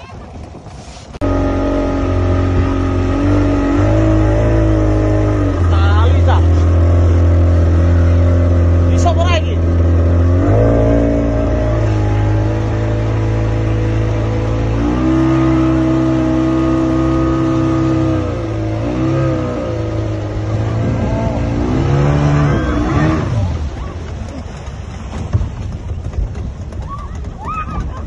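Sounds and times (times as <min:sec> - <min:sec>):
boat engine running hard: 0:00.0 - 0:28.0.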